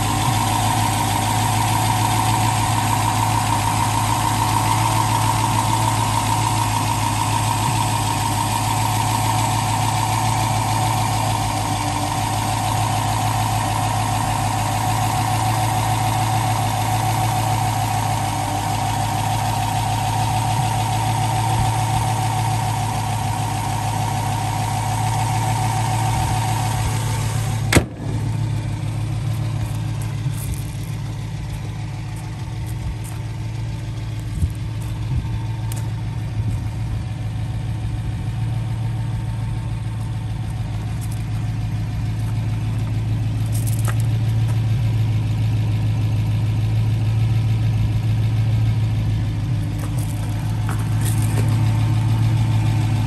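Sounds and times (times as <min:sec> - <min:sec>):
high steady whine: 0:00.0 - 0:37.8
car engine idling: 0:00.0 - 0:53.0.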